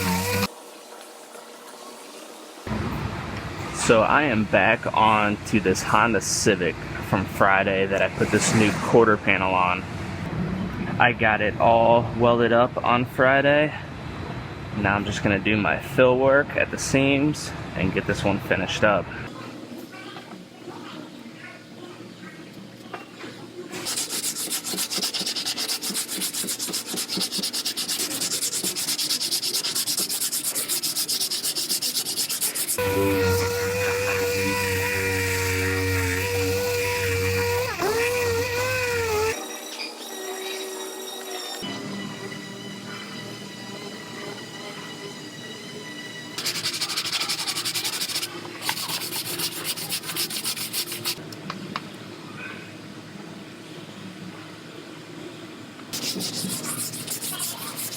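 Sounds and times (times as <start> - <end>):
sandpaper on metal: 0.0 - 0.5, 23.8 - 39.4, 46.4 - 51.2, 56.0 - 57.9.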